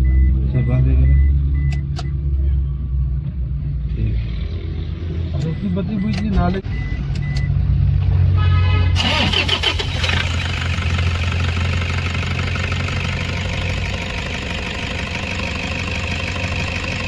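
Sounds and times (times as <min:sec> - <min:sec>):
car engine starting and idling: 0:09.0 - 0:17.0.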